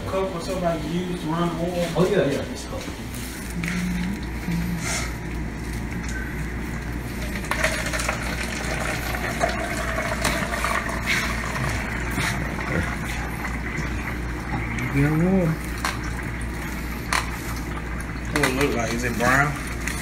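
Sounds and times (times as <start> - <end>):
water running into a foam cup: 7.1 - 20.0.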